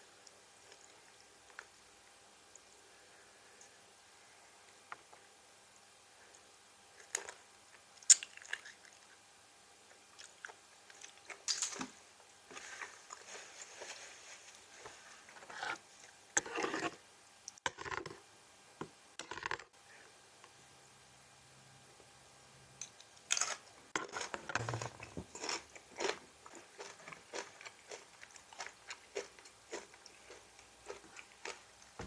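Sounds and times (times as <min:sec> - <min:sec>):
person crunching food: 0:23.4 - 0:32.0.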